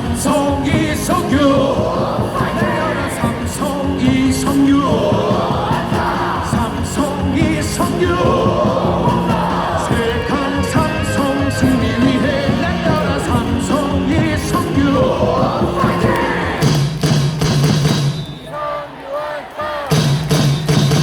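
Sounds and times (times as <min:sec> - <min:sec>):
crowd singing along: 0:00.0 - 0:17.0, 0:18.1 - 0:20.7
cheer song over loudspeakers: 0:00.0 - 0:21.0.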